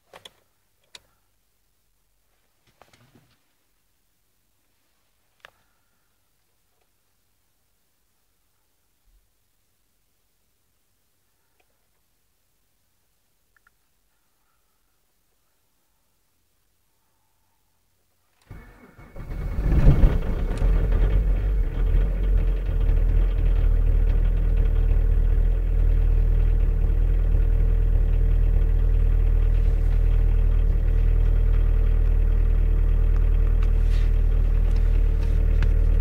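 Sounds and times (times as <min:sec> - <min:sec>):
starter motor cranking: 0:18.5 - 0:24.7
diesel engine starting and idling: 0:18.5 - 0:36.0.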